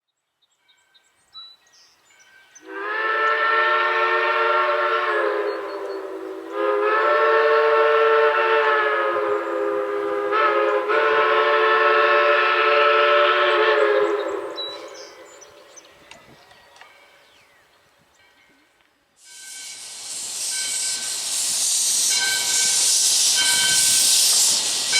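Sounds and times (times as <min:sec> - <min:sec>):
steam locomotive whistle blasts: 0:02.6 - 0:15.6, 0:19.2 - 0:24.9.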